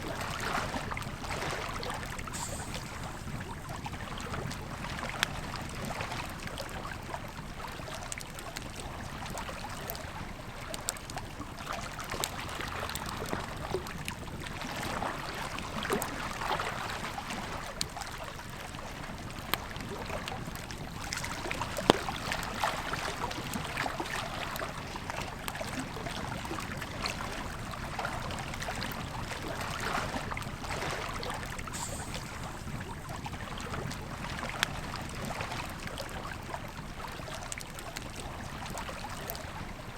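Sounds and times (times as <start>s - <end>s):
campfire crackling and popping: 19.0s - 25.7s.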